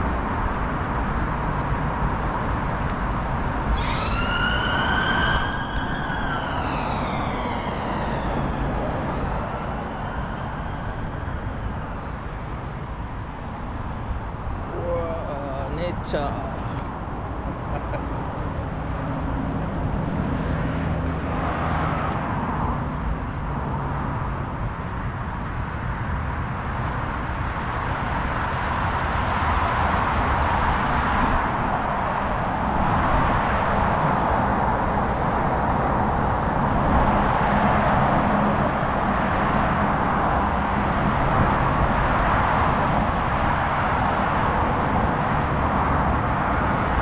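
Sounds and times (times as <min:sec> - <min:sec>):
traffic noise: 0:00.0 - 0:47.0
vehicle engine hum: 0:00.0 - 0:47.0
emergency vehicle siren wailing: 0:03.5 - 0:13.4.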